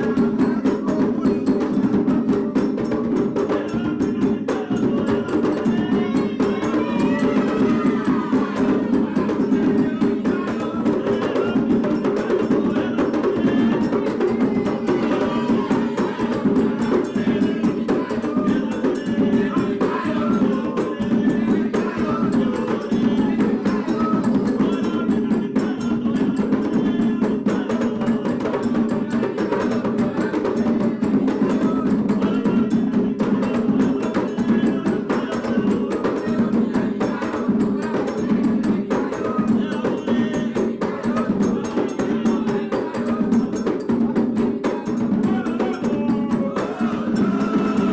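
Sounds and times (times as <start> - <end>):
hand drums playing rhythm: 0.0 - 47.9.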